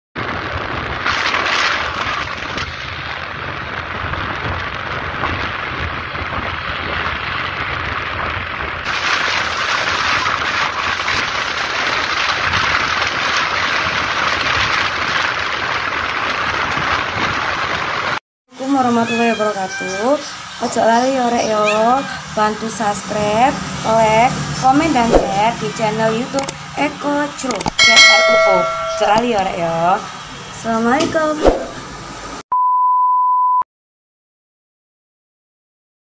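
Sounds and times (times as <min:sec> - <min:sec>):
truck driving on road: 0:00.2 - 0:09.8, 0:22.3 - 0:28.4.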